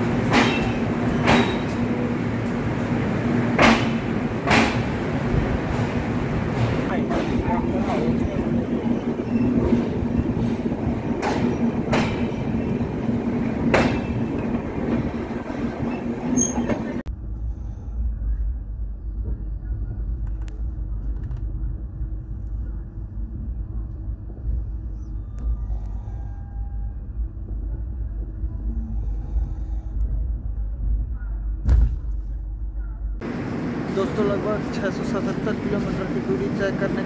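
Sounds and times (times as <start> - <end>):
train running hum: 0.0 - 37.0
deep rumble: 17.0 - 33.9.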